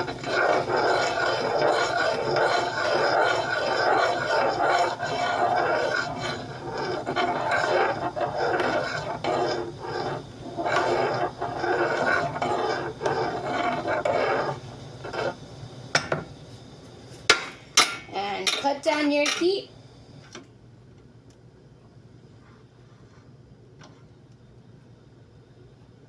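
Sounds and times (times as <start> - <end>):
spoon scraping a pot: 0.0 - 15.4.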